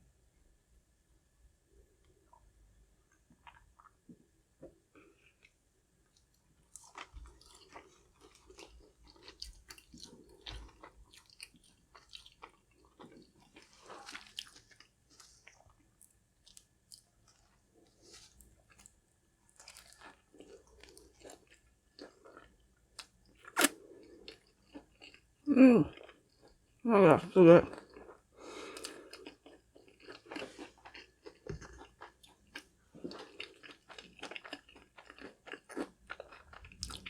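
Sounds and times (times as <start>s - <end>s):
crunchy food chewing: 6.1s - 25.3s, 27.7s - 37.0s.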